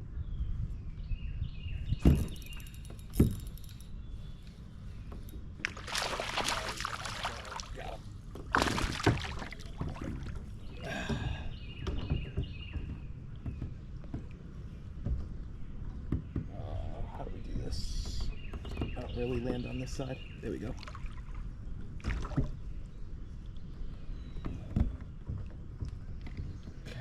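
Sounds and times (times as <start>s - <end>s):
water splashing against a kayak: 5.5s - 12.2s, 20.6s - 26.8s.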